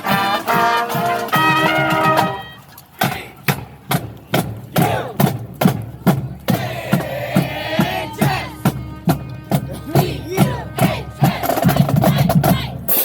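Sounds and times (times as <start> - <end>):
marching band drumline: 0.0 - 13.0
voices shouting: 4.7 - 5.3, 6.5 - 8.7, 9.7 - 12.9.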